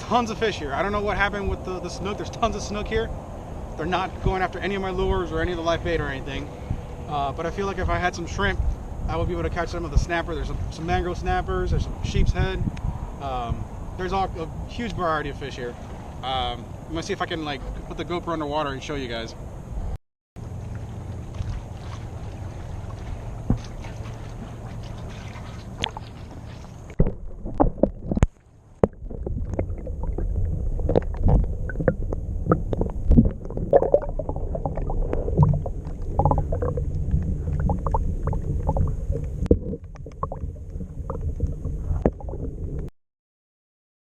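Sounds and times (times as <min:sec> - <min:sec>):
underwater water sloshing: 0:20.4 - 0:42.9.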